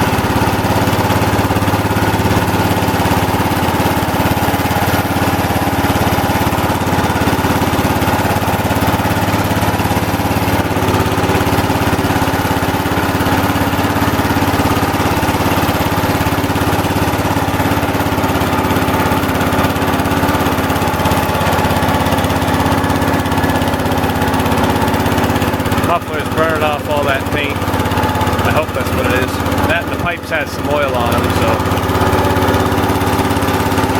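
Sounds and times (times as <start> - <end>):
garden tractor engine running: 0.0 - 33.9.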